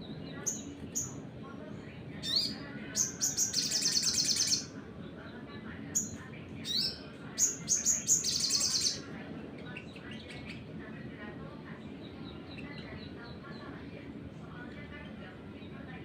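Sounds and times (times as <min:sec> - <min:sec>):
songbird rattling trill: 0:02.2 - 0:04.7, 0:06.0 - 0:09.1.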